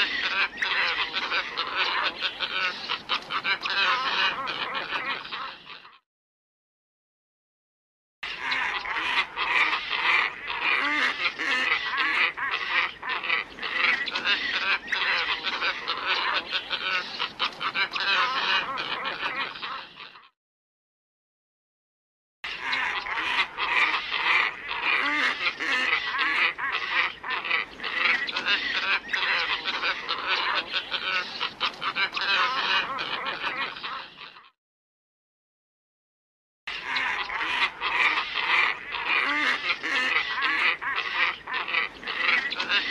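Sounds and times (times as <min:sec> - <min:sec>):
ibises honking calls: 0:08.3 - 0:19.9, 0:22.5 - 0:34.4
ibis harsh calls: 0:22.5 - 0:34.5, 0:36.7 - 0:42.9.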